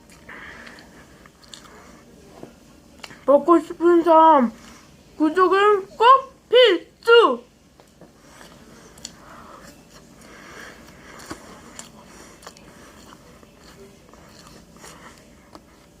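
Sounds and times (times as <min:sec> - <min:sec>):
soft chewing and biting: 0:00.0 - 0:03.3, 0:07.7 - 0:16.0.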